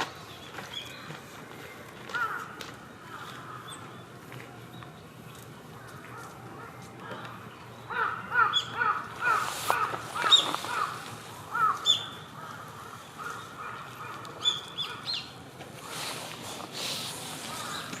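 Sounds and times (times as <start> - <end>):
crow cawing: 2.1 - 3.7, 7.9 - 15.2.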